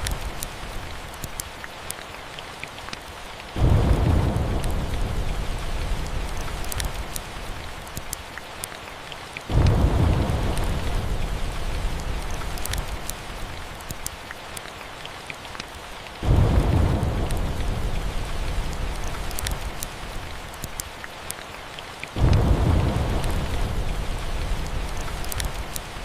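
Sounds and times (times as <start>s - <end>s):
steady rainfall: 0.0s - 26.0s
thunder rumbling: 3.6s - 7.4s, 9.5s - 13.7s, 16.2s - 20.3s, 22.2s - 26.0s.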